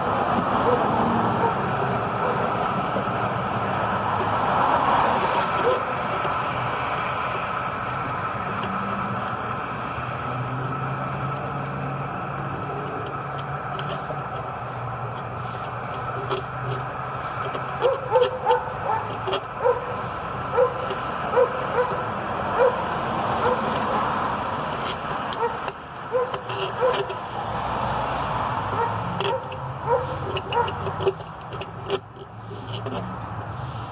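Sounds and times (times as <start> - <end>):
small dog barking and yipping: 17.8 - 19.9, 20.5 - 23.7, 25.4 - 27.0, 28.8 - 30.8.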